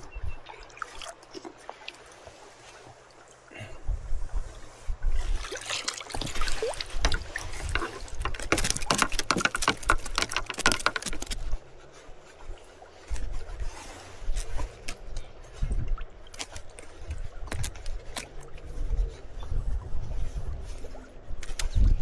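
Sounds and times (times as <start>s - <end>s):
water splashing and trickling: 0.4s - 3.7s, 5.1s - 19.1s
low gusty rumble: 3.7s - 5.4s, 11.4s - 16.2s, 16.9s - 22.0s.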